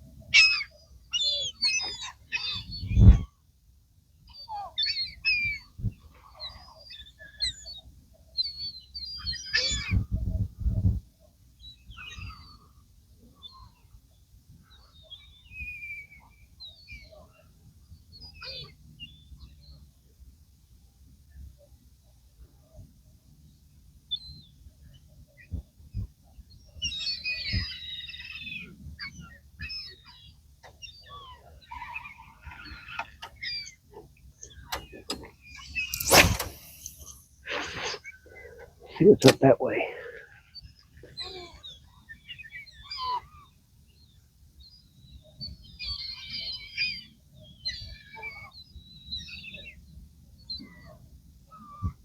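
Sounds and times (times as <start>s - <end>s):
birds chirping: 34.4s - 40.9s
falling bird whistle: 35.6s - 38.0s.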